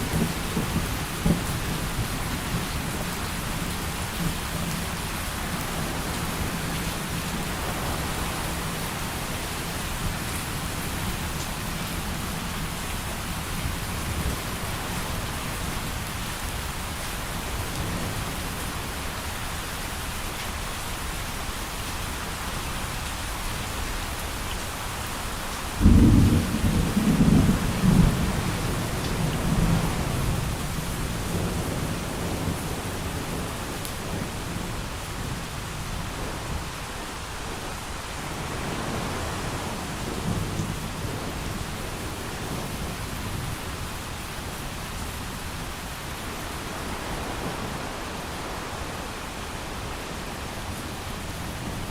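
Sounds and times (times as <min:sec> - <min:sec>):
heavy rain: 0:00.0 - 0:51.9
thunder clap rumbling: 0:25.8 - 0:30.6.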